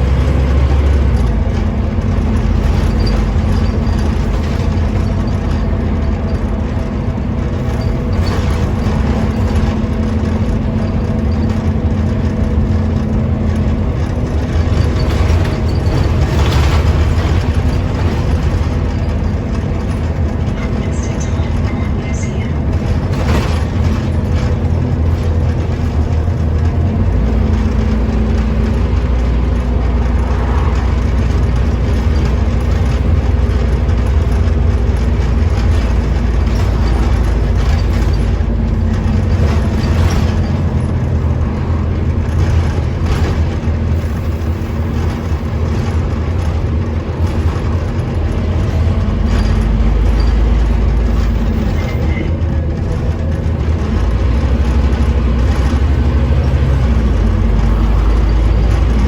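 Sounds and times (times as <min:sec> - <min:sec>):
bus engine drone: 0:00.0 - 0:59.0.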